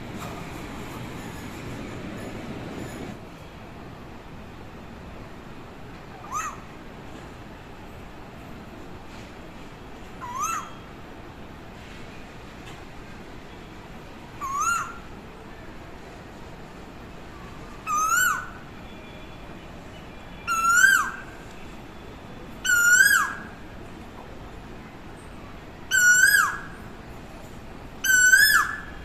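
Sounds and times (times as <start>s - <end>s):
bird calling rising whistles: 20.5s - 21.3s, 22.6s - 23.5s, 25.9s - 26.8s, 28.0s - 29.0s.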